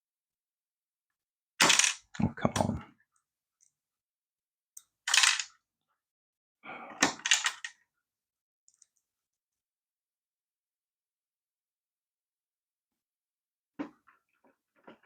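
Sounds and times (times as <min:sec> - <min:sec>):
plastic toy parts clicking: 0:01.6 - 0:02.0, 0:04.8 - 0:05.5, 0:07.0 - 0:07.8.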